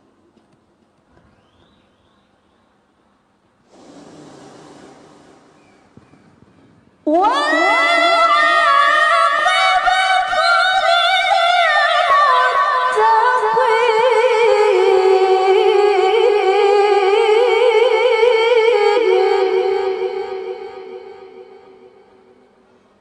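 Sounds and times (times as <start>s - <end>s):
woman reciting in melismatic chant: 7.1s - 22.3s.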